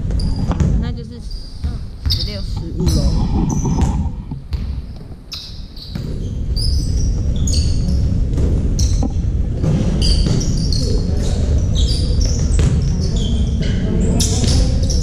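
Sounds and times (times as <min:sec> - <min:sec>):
basketball bouncing: 0:00.0 - 0:05.2, 0:05.8 - 0:13.3
low hall rumble: 0:00.0 - 0:05.3
sneakers squeaking on court: 0:00.0 - 0:09.2, 0:09.8 - 0:15.0.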